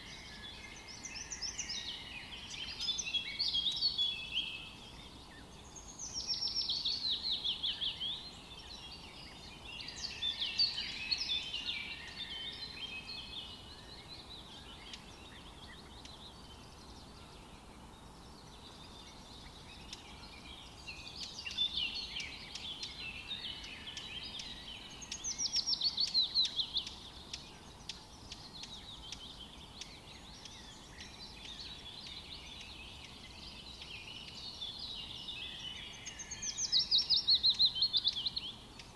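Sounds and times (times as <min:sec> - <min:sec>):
quiet bird chirping: 0:00.0 - 0:38.9
songbirds singing: 0:00.0 - 0:38.9.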